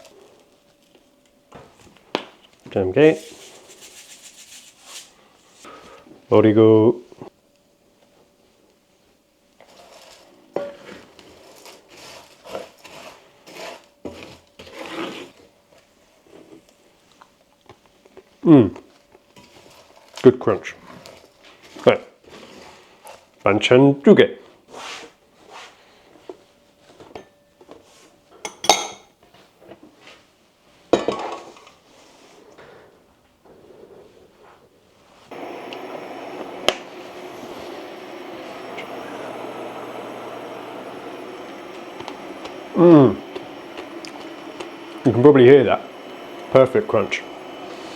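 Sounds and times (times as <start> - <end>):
utensil scraping and clinking on pan: 9.6 - 15.4.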